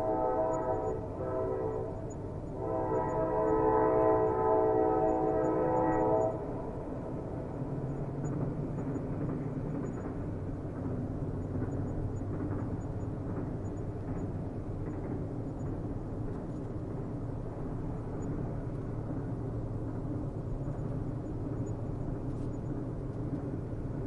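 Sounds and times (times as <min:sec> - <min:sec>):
train horn: 0:00.0 - 0:06.7
distant train rumbling on rails: 0:00.0 - 0:24.0.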